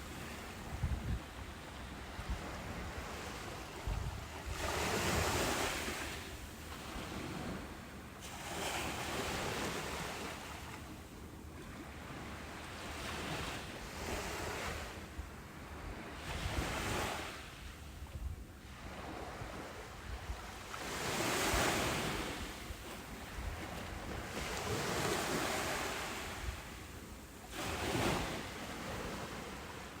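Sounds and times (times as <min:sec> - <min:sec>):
low wind rumble on microphone: 0:00.0 - 0:08.0, 0:13.2 - 0:29.7
waves breaking on a beach: 0:00.0 - 0:30.0.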